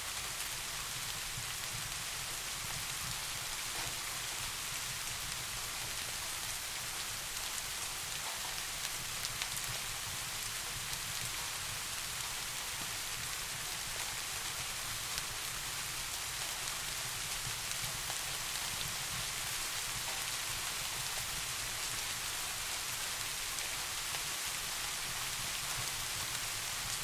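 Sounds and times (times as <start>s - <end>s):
steady rain hiss: 0.0s - 27.0s.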